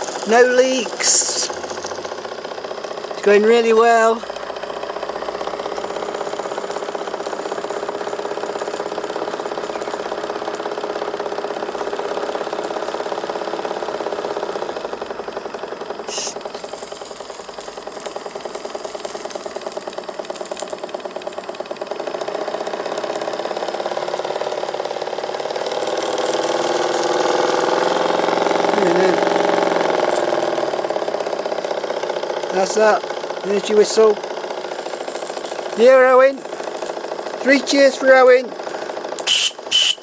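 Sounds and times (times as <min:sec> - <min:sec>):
model steam engine beating: 0:00.0 - 0:40.0
steam hiss: 0:01.0 - 0:02.1, 0:16.1 - 0:16.4.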